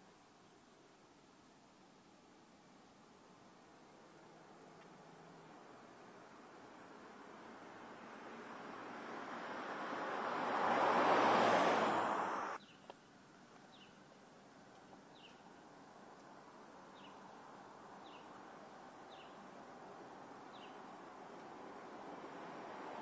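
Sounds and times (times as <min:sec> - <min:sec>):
loud rushing noise: 0:10.0 - 0:12.6
small bird chirping: 0:12.6 - 0:14.2, 0:14.8 - 0:15.6, 0:16.9 - 0:17.3, 0:19.1 - 0:19.5, 0:20.5 - 0:20.9.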